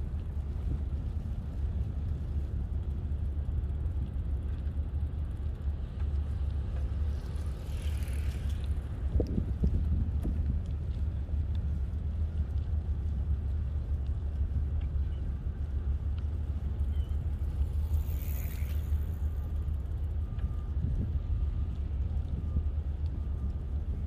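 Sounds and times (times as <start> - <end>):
bicycle rolling on pavement: 0.0 - 24.0
wind on microphone: 6.6 - 19.5, 20.1 - 24.0.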